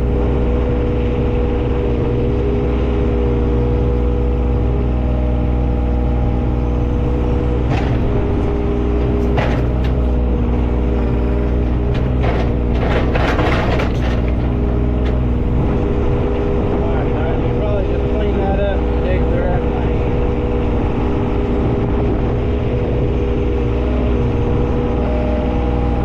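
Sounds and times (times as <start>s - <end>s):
engine running: 0.0s - 26.0s
scraping and clatter: 7.7s - 8.2s, 9.0s - 10.3s, 11.2s - 15.4s.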